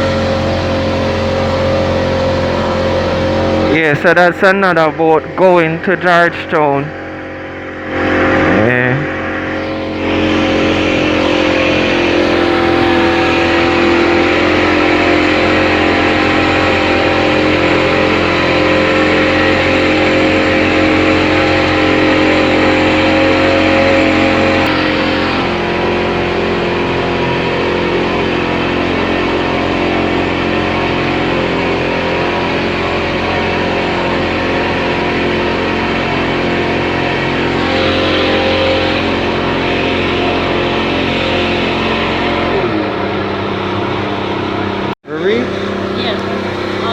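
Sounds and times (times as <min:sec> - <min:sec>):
speedboat engine running: 0:00.0 - 0:46.9.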